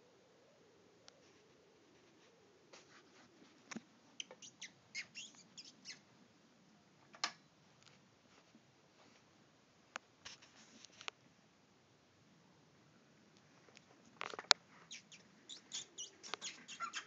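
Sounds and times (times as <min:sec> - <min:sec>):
bird chirping: 0:04.1 - 0:06.1, 0:14.8 - 0:17.0.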